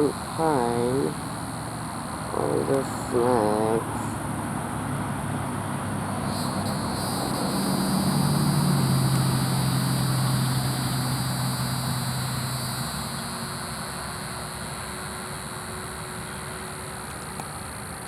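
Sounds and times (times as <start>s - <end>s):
distant engine hum passing: 1.1s - 14.1s.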